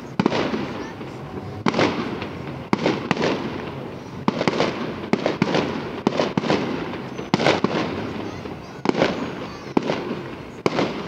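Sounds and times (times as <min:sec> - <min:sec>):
fireworks bursting with echo: 0:00.0 - 0:11.0.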